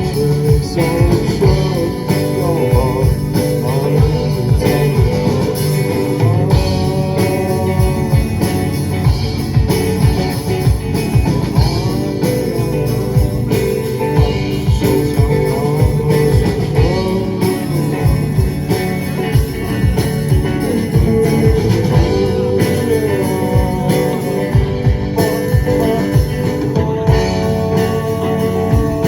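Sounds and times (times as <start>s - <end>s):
bass guitar: 0.0s - 29.0s
drums and cymbals: 0.0s - 29.0s
electric guitar bending notes: 0.0s - 29.0s.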